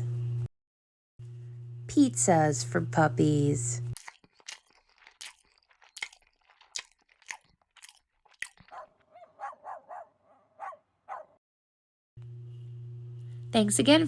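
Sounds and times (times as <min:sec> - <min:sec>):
crunchy chewing: 0:04.0 - 0:11.2.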